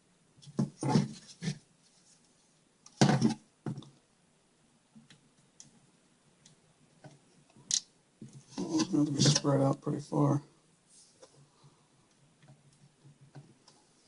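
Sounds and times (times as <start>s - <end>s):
rustling and scraping handling noises: 0.4s - 3.9s, 8.2s - 10.0s, 10.8s - 11.8s.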